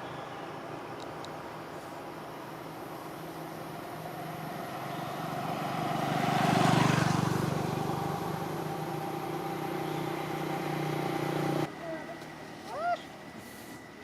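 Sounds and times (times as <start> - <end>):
vehicle engine passing by: 3.2 - 11.7.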